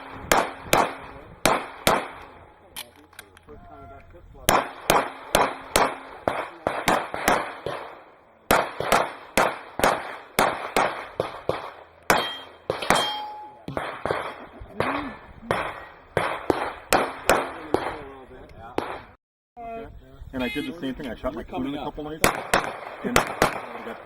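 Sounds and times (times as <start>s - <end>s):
rapid gunshots: 0.0s - 2.6s, 4.5s - 18.1s, 18.8s - 19.2s, 22.2s - 24.0s
metallic clang of steel targets: 0.0s - 3.5s, 4.5s - 18.0s.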